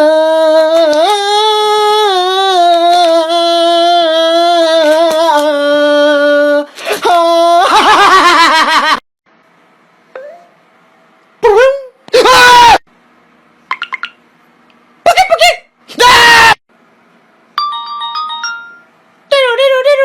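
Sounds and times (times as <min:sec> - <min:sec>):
person singing long held notes: 0:00.0 - 0:07.6.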